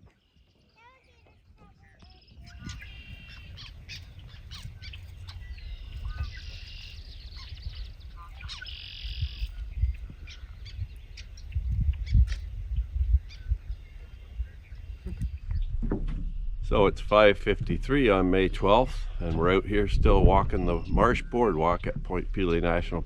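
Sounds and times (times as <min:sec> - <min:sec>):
songbirds singing: 0:00.0 - 0:23.0
buzzy bird trills: 0:01.8 - 0:16.6
low rumble: 0:02.7 - 0:23.0.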